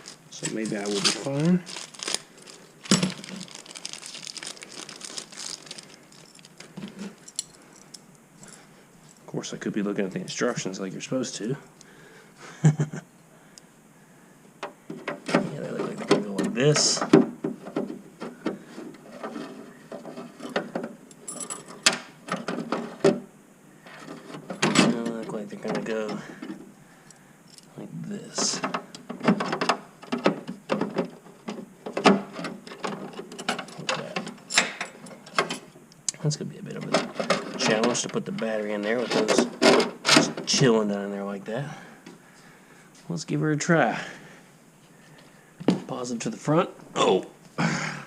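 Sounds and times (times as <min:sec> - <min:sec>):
metal hooks clicking and rattling: 0:00.0 - 0:09.3
plastic parts crinkling: 0:00.0 - 0:09.3, 0:36.8 - 0:40.7.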